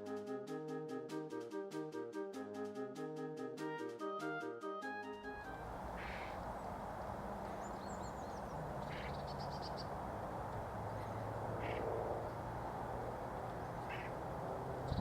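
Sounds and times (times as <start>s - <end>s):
small birds high notes and trill: 2.9s - 15.0s
steady background hiss: 5.5s - 15.0s
harsh bird call: 5.9s - 6.7s, 7.5s - 9.9s, 11.0s - 11.9s, 13.8s - 14.2s.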